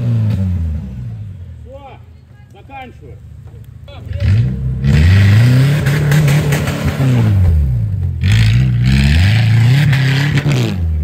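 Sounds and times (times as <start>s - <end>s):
engine revving hard: 4.1s - 11.0s.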